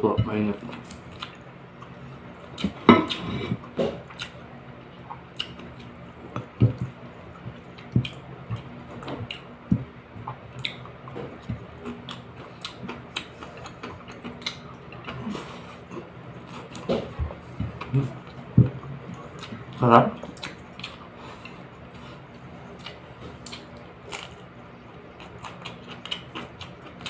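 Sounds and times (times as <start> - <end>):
faint steady hum: 0.0 - 27.0
wet chewing and lip smacks: 5.0 - 6.9, 10.2 - 11.0, 22.8 - 24.4, 25.2 - 27.0.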